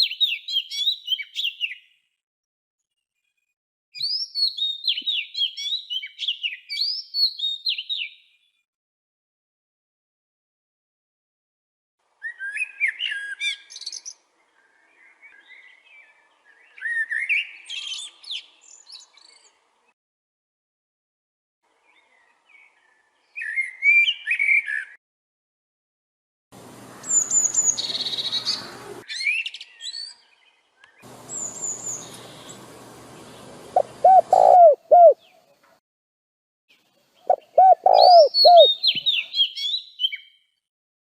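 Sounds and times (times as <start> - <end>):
songbirds chirping: 4.2 - 8.6, 12.2 - 20.0, 21.7 - 25.0, 26.6 - 35.8, 36.7 - 40.6
steady hiss: 31.1 - 34.0.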